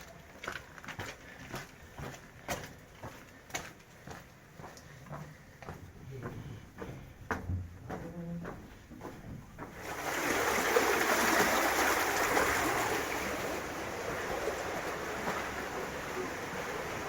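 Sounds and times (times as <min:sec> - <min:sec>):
waterfall rushing: 0:10.1 - 0:17.0.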